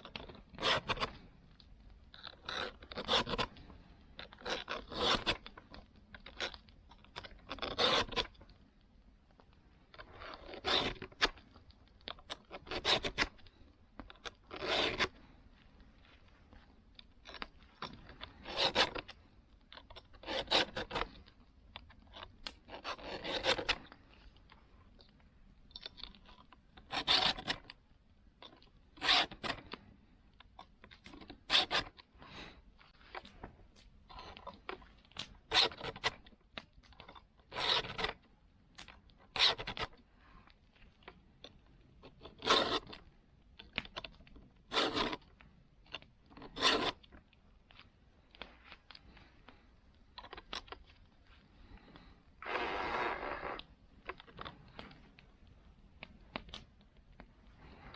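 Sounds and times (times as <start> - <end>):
file rasping on saw teeth: 0.6 - 1.1, 2.4 - 3.5, 4.4 - 5.4, 7.6 - 8.3, 10.3 - 11.2, 14.5 - 15.1, 18.4 - 19.0, 20.2 - 21.1, 22.8 - 23.8, 26.9 - 27.6, 29.0 - 29.6, 31.5 - 31.9, 35.5 - 36.1, 37.5 - 38.1, 42.4 - 42.9, 44.7 - 45.2, 46.5 - 47.0.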